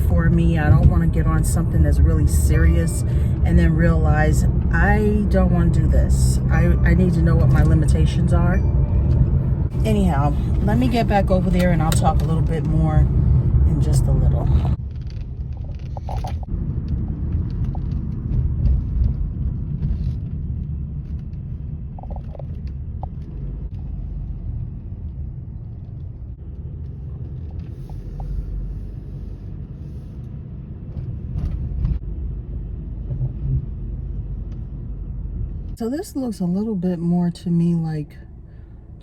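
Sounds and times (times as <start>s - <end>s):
car cabin rumble while driving: 0.0s - 39.0s.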